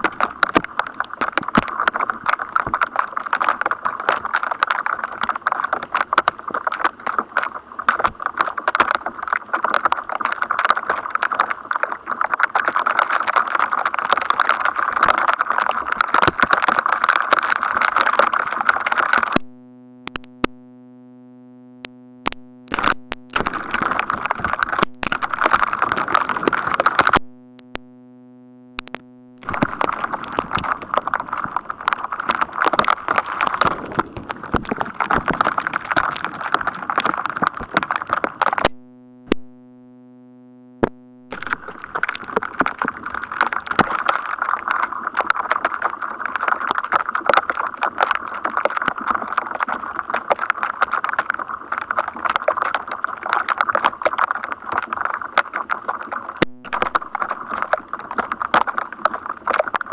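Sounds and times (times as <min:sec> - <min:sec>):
crackling electrostatic static: 0:00.0 - 0:59.9
faint steady hum: 0:17.6 - 0:46.6, 0:54.3 - 0:59.9.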